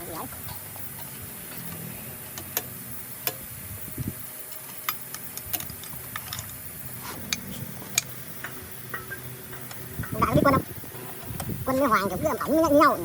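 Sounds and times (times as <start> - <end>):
tools clicking and tapping: 7.2 - 11.6.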